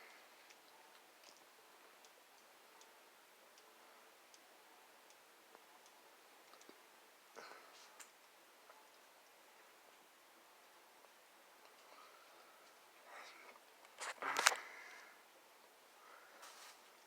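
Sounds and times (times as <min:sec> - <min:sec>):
ceiling fan ticking: 0:00.0 - 0:17.0
brief rustle: 0:13.9 - 0:14.7.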